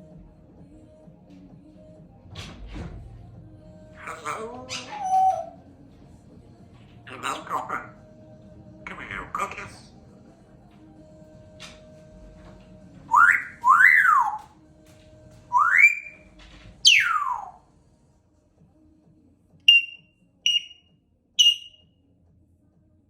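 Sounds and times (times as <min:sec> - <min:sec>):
parrot whistling: 0:04.0 - 0:05.6, 0:13.1 - 0:14.4, 0:15.5 - 0:17.6, 0:19.7 - 0:20.8, 0:21.4 - 0:21.8
short high chirps: 0:19.7 - 0:20.8, 0:21.4 - 0:21.8.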